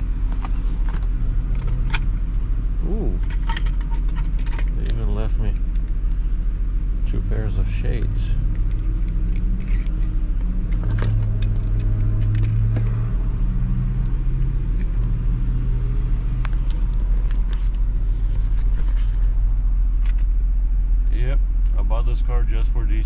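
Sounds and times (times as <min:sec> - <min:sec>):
low engine rumble: 0:00.0 - 0:23.0
clicks and knocks of handling: 0:03.2 - 0:06.2, 0:07.9 - 0:12.9.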